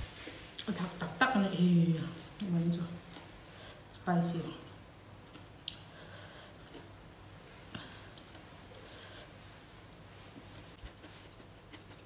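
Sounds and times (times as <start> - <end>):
mouth chewing food: 5.0 - 7.0, 10.8 - 12.0.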